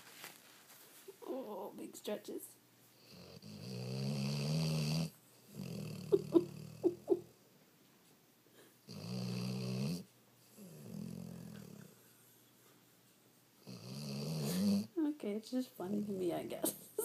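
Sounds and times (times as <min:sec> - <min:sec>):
dog snoring: 0:03.0 - 0:07.1, 0:08.9 - 0:12.0, 0:13.6 - 0:14.9.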